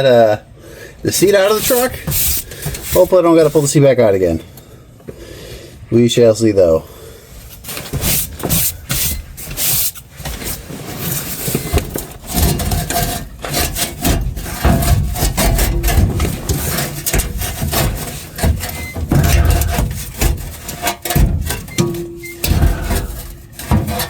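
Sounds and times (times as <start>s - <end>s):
metal parts scraping and knocking: 1.2s - 3.7s, 7.5s - 24.0s.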